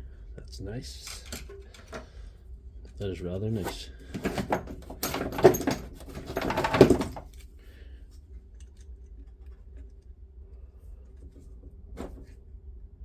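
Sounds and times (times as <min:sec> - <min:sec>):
faint low hum: 0:00.0 - 0:13.0
clicks of small parts handled: 0:01.0 - 0:02.0.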